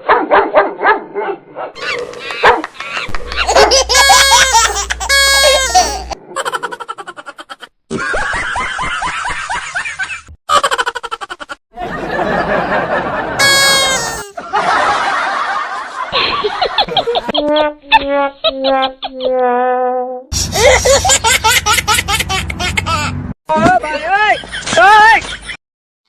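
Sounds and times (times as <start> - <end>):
people laughing: 1.8 - 17.7, 24.0 - 25.6.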